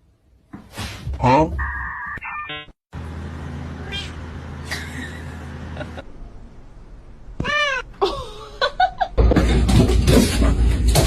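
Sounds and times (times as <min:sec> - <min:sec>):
cat meowing: 0:03.8 - 0:04.2, 0:07.4 - 0:07.9.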